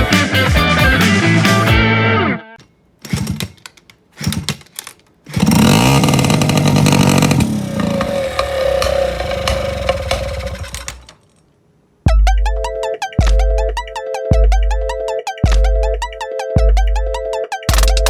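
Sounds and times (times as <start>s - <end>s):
two-stroke motorcycle engine revving: 5.3s - 11.2s.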